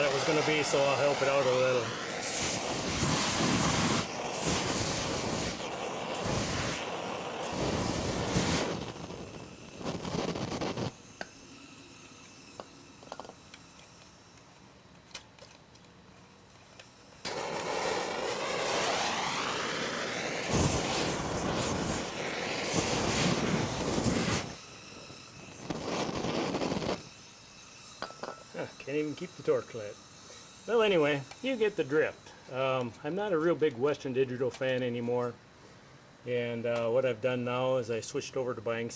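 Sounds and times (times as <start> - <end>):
torch clicks: 0.0 - 11.4, 12.0 - 27.2
gas torch flame blowing: 0.0 - 15.7, 16.6 - 33.4.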